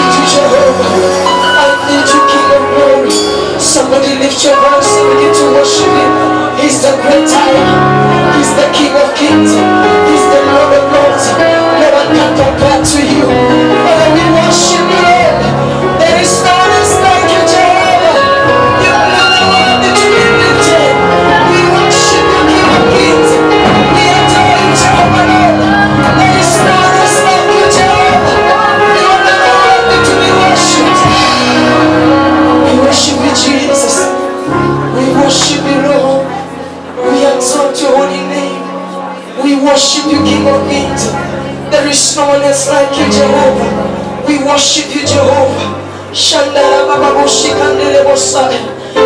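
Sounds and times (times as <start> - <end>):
bass line: 0.0 - 39.2
held keyboard chords: 0.0 - 49.0.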